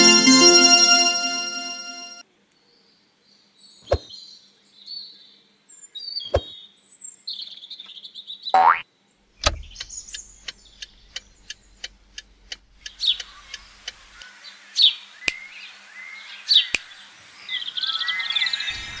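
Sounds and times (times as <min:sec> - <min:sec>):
light ticks: 0:09.4 - 0:14.0.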